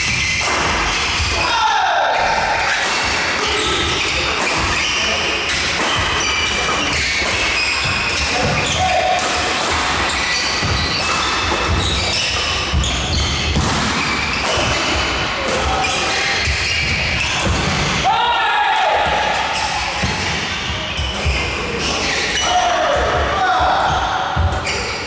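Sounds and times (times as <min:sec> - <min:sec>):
racket striking shuttlecock: 0:02.3 - 0:18.1
shoes squeaking on floor: 0:03.4 - 0:18.1, 0:19.4 - 0:25.0.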